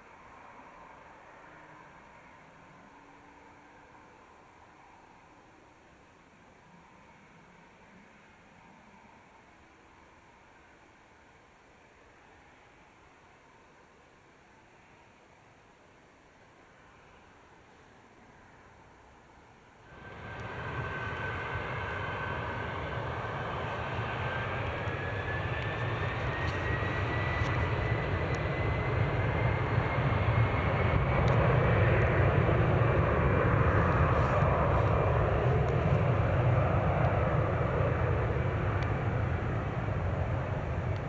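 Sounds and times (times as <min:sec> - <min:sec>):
jet engines at takeoff: 0:19.8 - 0:41.0.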